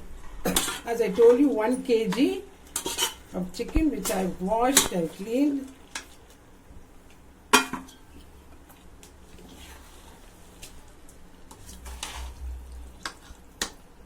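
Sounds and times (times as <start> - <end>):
metal clank against pot: 7.5 - 8.0
chicken pieces squelching into pot: 7.9 - 13.9.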